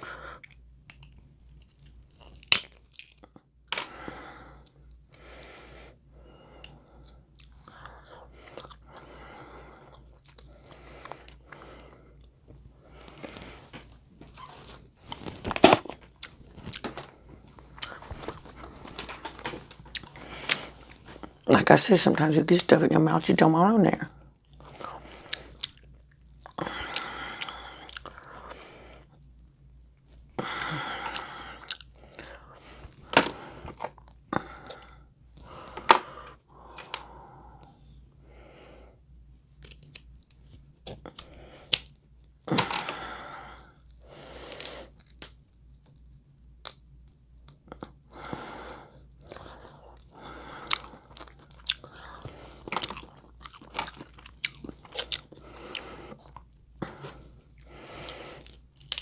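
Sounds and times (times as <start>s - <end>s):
chewing and crunching food: 0.0s - 3.6s, 6.5s - 21.6s, 24.4s - 29.2s, 30.4s - 35.8s, 39.6s - 42.0s, 42.8s - 59.0s
biting and chewing with crunches: 14.4s - 21.3s, 49.2s - 59.0s.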